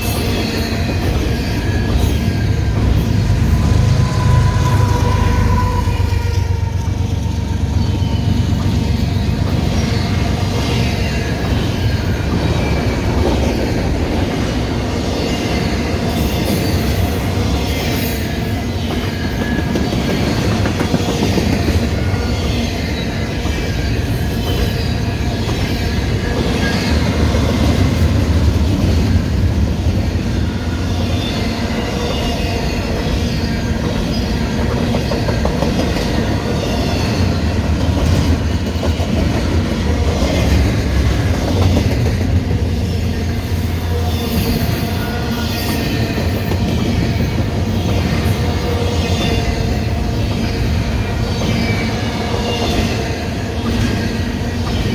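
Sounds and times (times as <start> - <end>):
steel wheels rumbling on rail: 0.0 - 54.9.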